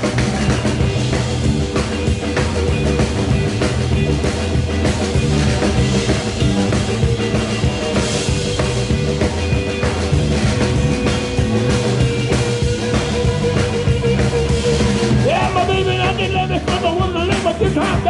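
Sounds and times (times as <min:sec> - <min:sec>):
blues band playing: 0:00.0 - 0:18.0
drum kit beat: 0:00.0 - 0:18.0
guitar: 0:00.0 - 0:18.0
person singing: 0:13.8 - 0:18.0.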